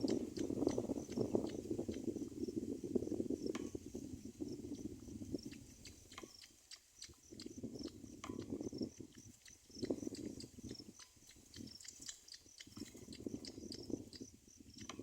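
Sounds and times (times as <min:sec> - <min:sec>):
crackling rustle in a nest: 0:08.9 - 0:13.6.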